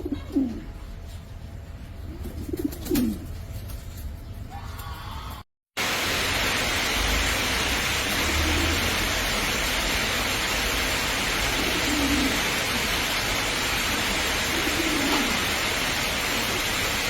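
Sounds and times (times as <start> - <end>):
dove cooing: 0.0 - 0.8, 2.1 - 3.3, 11.5 - 12.7, 14.0 - 16.8
rushing falling water: 5.8 - 17.0.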